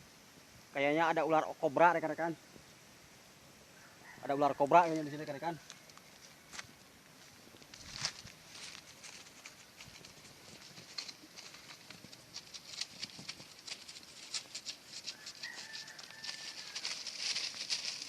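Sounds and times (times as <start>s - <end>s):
footsteps crunching on dry leaves: 4.8s - 18.0s.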